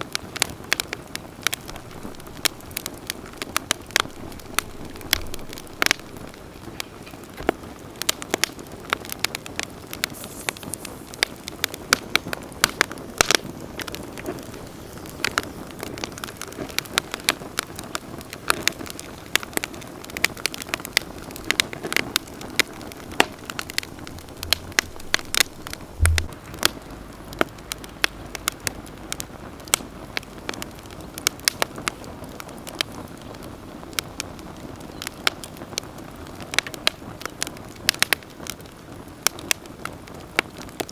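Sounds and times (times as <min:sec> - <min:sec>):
campfire flames rushing: 0:00.0 - 0:40.9
fire crackling and popping: 0:00.0 - 0:40.9
low thump: 0:24.0 - 0:26.8.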